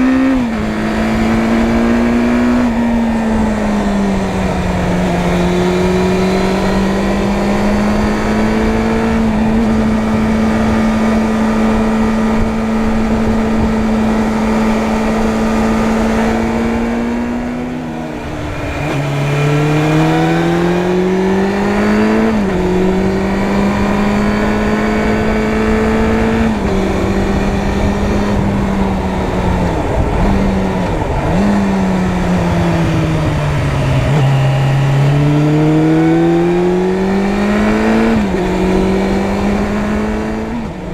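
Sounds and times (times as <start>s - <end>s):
motorcycle engine: 0.0s - 40.9s
wind noise: 0.0s - 40.9s.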